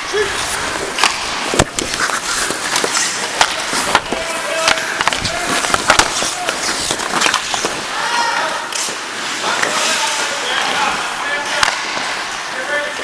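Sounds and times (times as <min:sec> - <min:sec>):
hockey sticks and puck clacking: 0:00.0 - 0:13.0
skates scraping ice: 0:00.0 - 0:13.0
players shouting: 0:02.8 - 0:07.0, 0:07.7 - 0:08.8.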